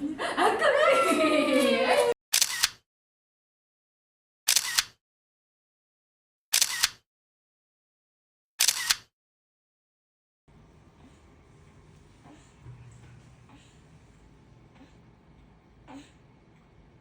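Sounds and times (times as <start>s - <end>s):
camera shutter double clicks: 2.3s - 2.8s, 4.5s - 5.0s, 6.5s - 7.0s, 8.6s - 9.1s.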